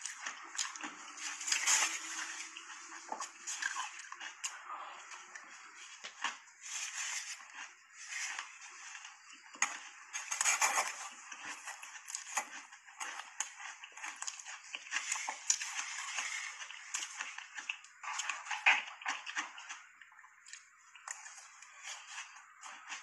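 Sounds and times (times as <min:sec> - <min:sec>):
person crunching shaved ice: 0:09.8 - 0:18.6.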